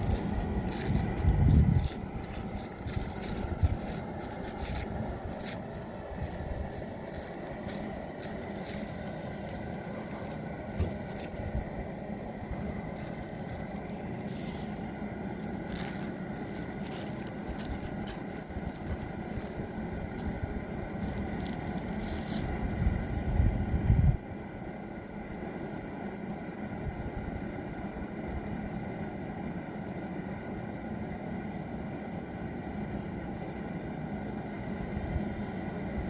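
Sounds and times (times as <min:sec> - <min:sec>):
fire crackling and popping: 0:00.0 - 0:23.2
fire rushing: 0:00.0 - 0:23.3.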